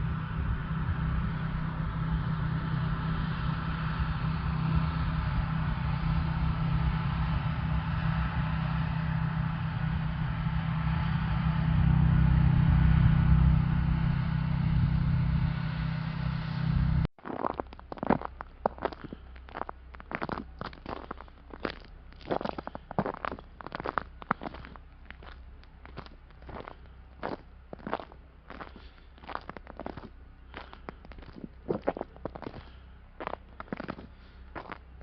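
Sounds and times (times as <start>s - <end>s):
vehicle engine running: 0.0s - 35.0s
crunching clicks: 17.2s - 34.8s.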